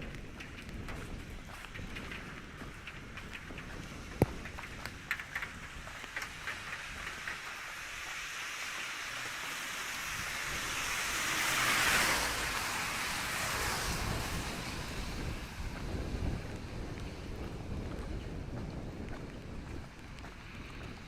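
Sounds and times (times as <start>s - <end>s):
rain falling: 0.0s - 21.0s
tyres hissing on wet street: 3.8s - 17.8s.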